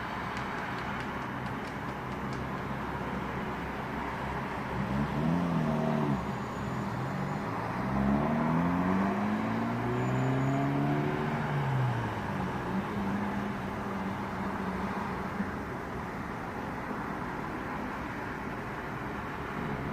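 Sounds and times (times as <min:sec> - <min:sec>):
vehicle accelerating past: 0:07.4 - 0:12.3
car engine revving: 0:07.5 - 0:13.7.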